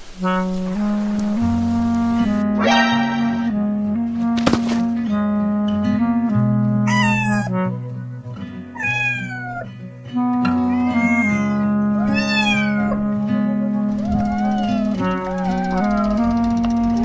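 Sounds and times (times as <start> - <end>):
background music: 0.2 - 17.0
cartoon cat meowing: 6.9 - 7.6, 8.8 - 9.7, 10.6 - 13.0, 14.0 - 16.4.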